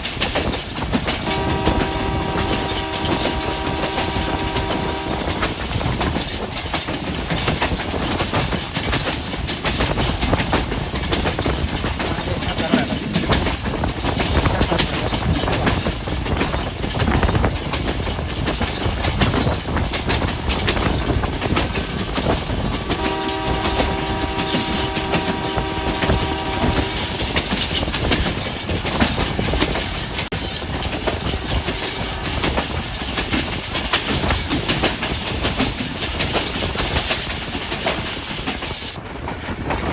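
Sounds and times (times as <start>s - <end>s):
train wheels clattering over rails: 0.0s - 39.9s
locomotive horn blast: 1.2s - 5.6s, 22.8s - 27.4s.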